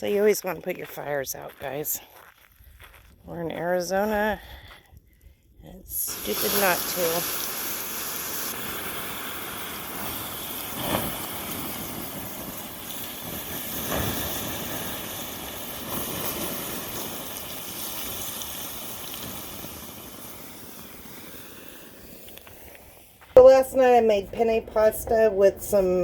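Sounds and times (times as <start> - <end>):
campfire hissing and steaming: 5.9 - 25.2.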